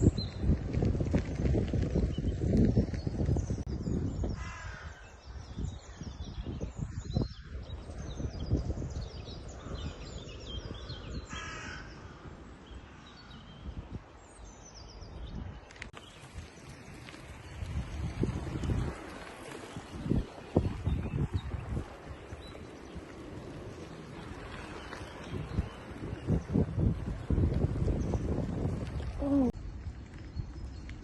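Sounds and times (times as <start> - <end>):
crow cawing: 11.3 - 12.3.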